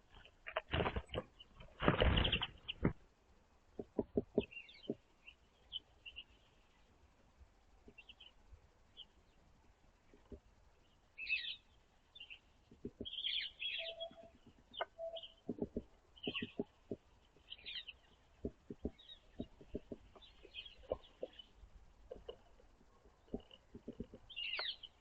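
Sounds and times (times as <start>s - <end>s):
songbirds chirping: 0.0s - 25.0s
beaks pecking at food: 11.2s - 25.0s.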